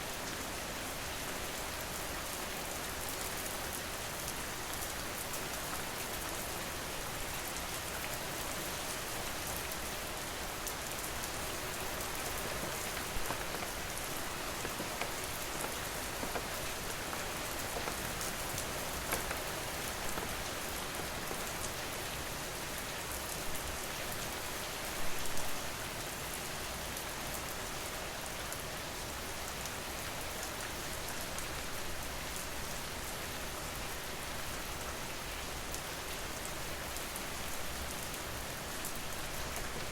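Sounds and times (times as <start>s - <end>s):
rain falling: 0.0s - 39.9s
raindrops ticking: 10.8s - 22.3s.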